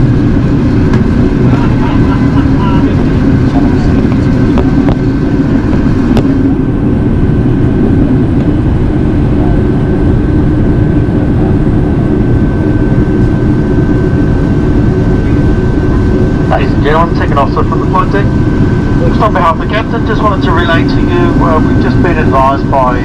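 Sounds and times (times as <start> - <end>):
rumble of engines and rushing air: 0.0 - 23.0
thin constant whine: 0.0 - 23.0.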